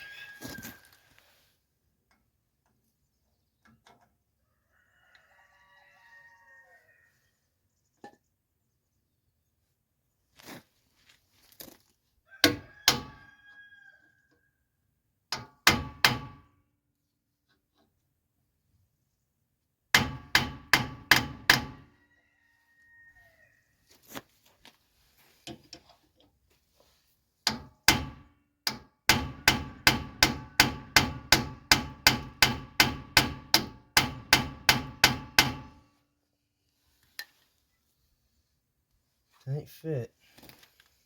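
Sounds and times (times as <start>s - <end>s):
hammer striking metal: 27.5s - 35.8s.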